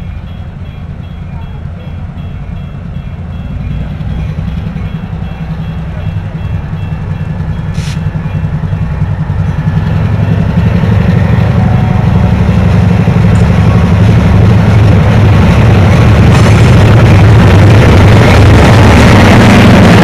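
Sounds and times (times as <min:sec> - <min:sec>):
diesel locomotive engine throbbing: 0:00.0 - 0:20.0
brief hiss: 0:07.8 - 0:08.0.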